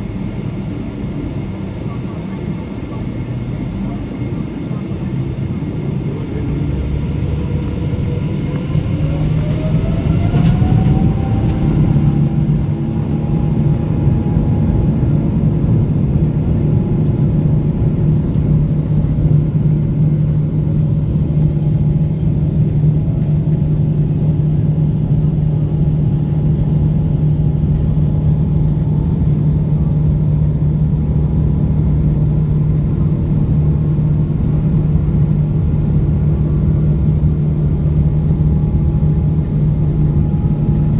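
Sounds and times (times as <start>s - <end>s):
aircraft rumble on takeoff roll: 0.0s - 40.9s
jet engines spooling up: 5.0s - 15.4s.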